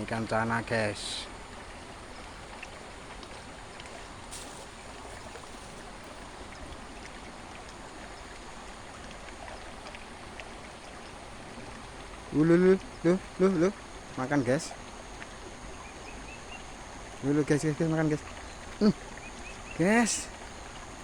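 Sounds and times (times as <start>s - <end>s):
flowing river water: 0.0s - 21.0s
short hiss: 4.3s - 6.2s.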